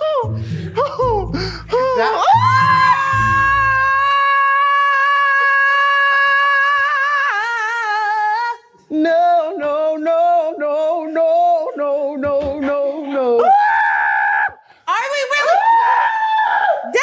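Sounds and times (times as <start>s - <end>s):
lower voice sung cries: 0.0s - 14.6s
woman's high sung scream: 15.4s - 17.0s.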